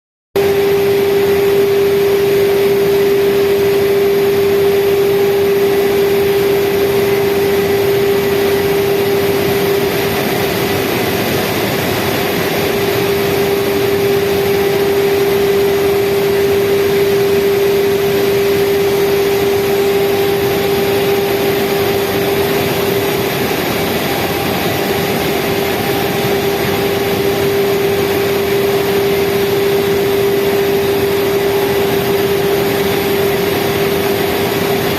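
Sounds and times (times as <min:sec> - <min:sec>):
outboard engine drone: 0:00.4 - 0:34.9.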